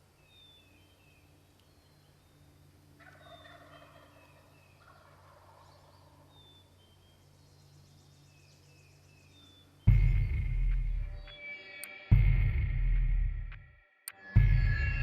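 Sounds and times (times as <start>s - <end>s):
distant turkey gobbles: 3.0s - 6.3s.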